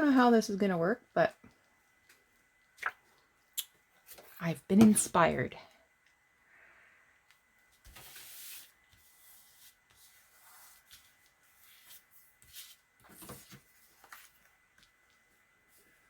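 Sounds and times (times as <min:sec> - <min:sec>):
paper rustling: 0:07.7 - 0:16.0.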